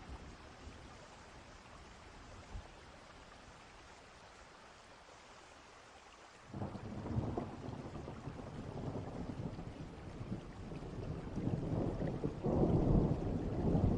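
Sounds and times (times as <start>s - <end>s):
steady rain: 0.0s - 13.9s
distant thunder rumbling: 6.5s - 13.9s.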